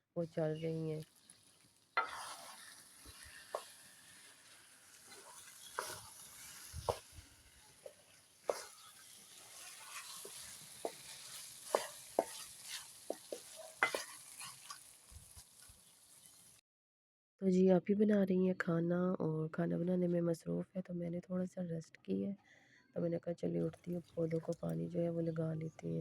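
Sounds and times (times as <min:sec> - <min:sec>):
food sizzling: 0:00.4 - 0:16.6
metal spoon scraping a pan: 0:01.2 - 0:15.0.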